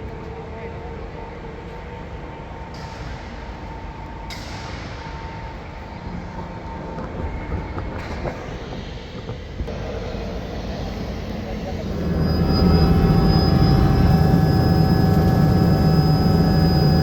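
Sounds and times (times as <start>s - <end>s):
faint steady hum: 9.7s - 17.0s.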